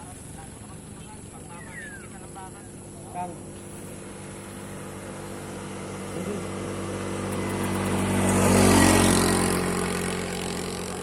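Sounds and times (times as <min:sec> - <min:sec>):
vehicle driving past: 0:03.2 - 0:11.0.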